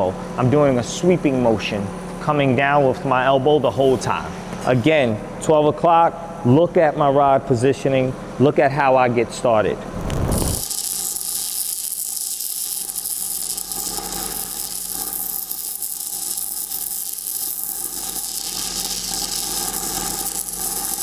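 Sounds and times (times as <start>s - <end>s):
welding arc crackling hiss: 9.9s - 21.0s.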